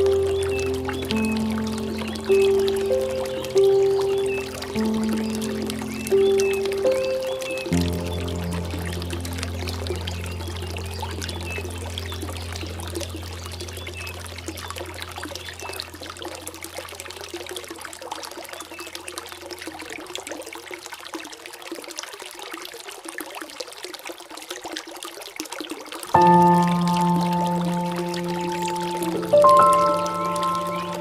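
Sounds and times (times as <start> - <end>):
low held music tone: 0.0 - 17.0, 26.2 - 31.0
water trickling and splashing: 0.0 - 31.0.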